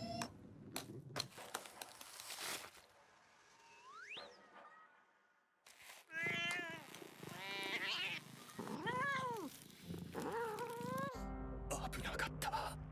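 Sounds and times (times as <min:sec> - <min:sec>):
cat meowing: 0:06.1 - 0:09.6.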